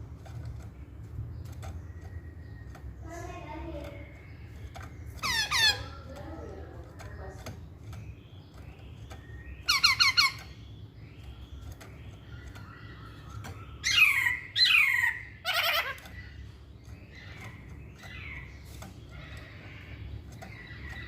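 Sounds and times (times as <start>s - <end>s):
bird calling: 0.0s - 21.0s.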